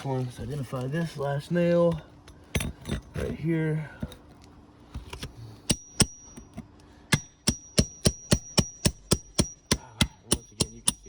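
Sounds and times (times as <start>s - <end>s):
hammer striking metal tool: 5.7s - 6.5s, 7.1s - 11.0s.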